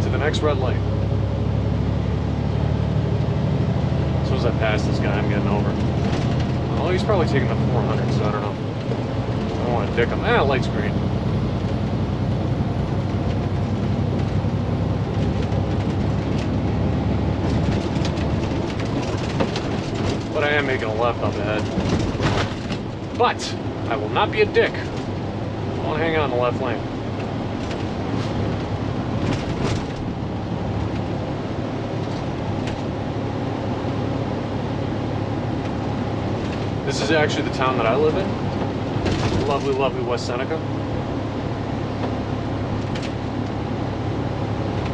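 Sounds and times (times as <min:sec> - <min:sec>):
truck diesel engine under load: 0:00.0 - 0:44.9
faint clicks and rattles: 0:17.4 - 0:23.2.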